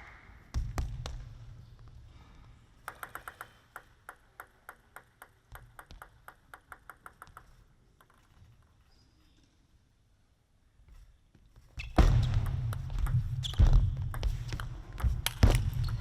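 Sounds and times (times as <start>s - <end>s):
table tennis ball clicking: 2.8s - 8.3s.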